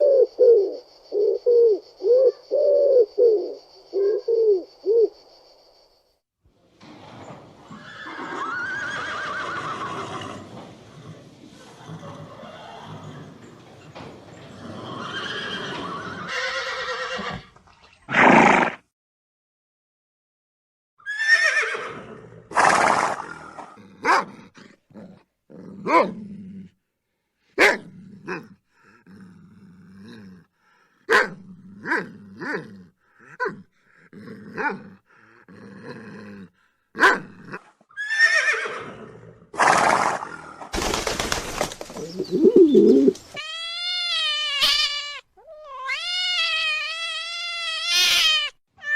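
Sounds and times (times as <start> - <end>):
horse neighing: 7.7 - 13.5, 14.5 - 18.8, 21.0 - 23.8, 37.9 - 40.5
cat meowing: 43.4 - 48.9.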